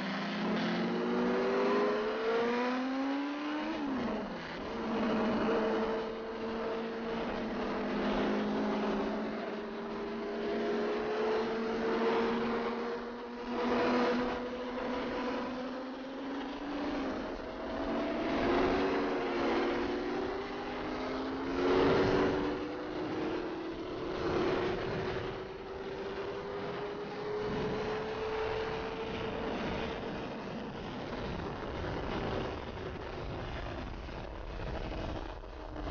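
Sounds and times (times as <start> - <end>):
motorcycle engine cruising: 0.0 - 35.9
wind noise: 16.4 - 35.9.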